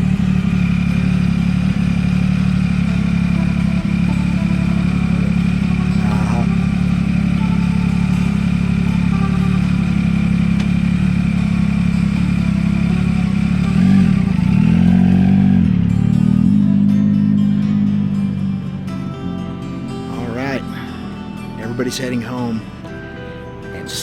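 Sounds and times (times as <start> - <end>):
motorcycle engine revving: 0.0 - 21.6.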